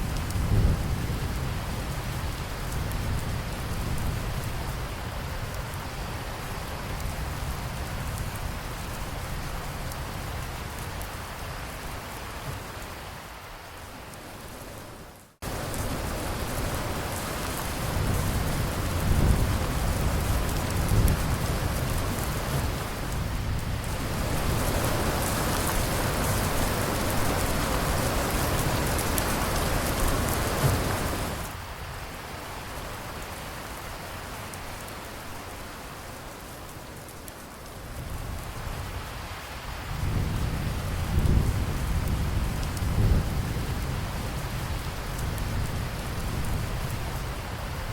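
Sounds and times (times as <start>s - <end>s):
heavy rain: 0.0s - 47.9s
thunder rumbling: 15.4s - 31.6s, 39.6s - 47.9s.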